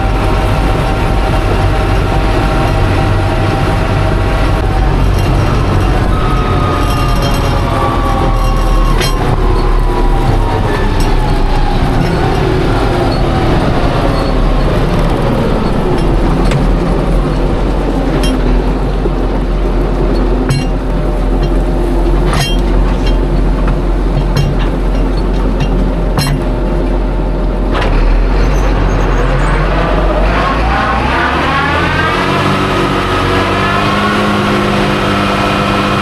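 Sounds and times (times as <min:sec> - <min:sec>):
whine falling in pitch: 0:00.0 - 0:21.7
machinery low rumble: 0:00.0 - 0:36.0.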